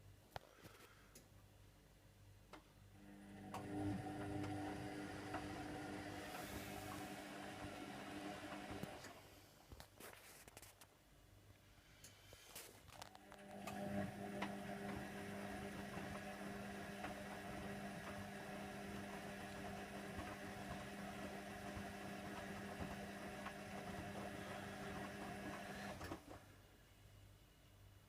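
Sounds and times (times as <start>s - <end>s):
washer dryer motor humming: 3.0s - 9.1s, 13.3s - 26.3s.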